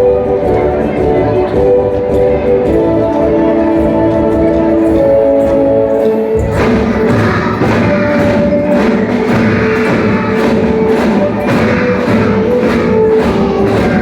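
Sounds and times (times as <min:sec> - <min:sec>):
held melodic notes: 0:00.0 - 0:14.0
steady drum beat: 0:06.4 - 0:14.0.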